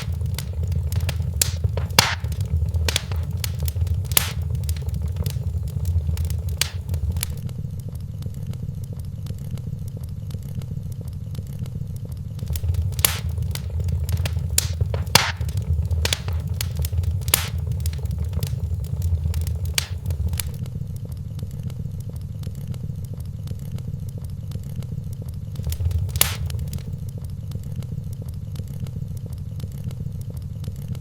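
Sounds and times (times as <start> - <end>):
wood fire crackling: 0.0 - 7.4, 12.4 - 20.6, 25.6 - 27.1
low steady rumble: 0.0 - 7.6, 12.4 - 20.6, 25.6 - 27.4.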